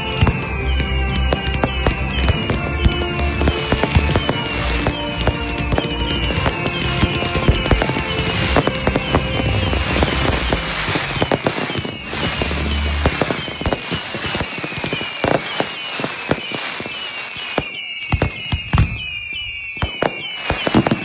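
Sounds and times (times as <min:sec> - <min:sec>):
fireworks bangs and crackles: 0:00.0 - 0:21.0
fireworks whistle falling in pitch: 0:00.0 - 0:21.0.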